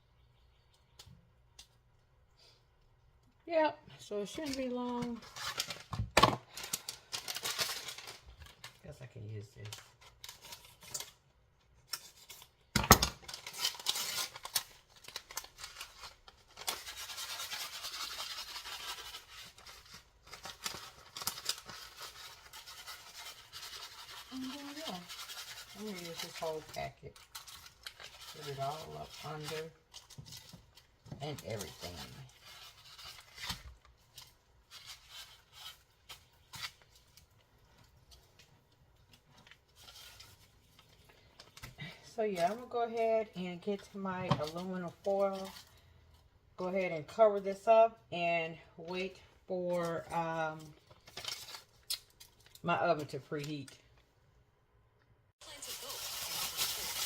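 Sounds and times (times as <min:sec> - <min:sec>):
paper packet tearing: 0:04.4 - 0:37.3, 0:50.6 - 0:52.6, 0:55.4 - 0:57.0
paper rustling: 0:13.2 - 0:38.4, 0:55.5 - 0:57.0.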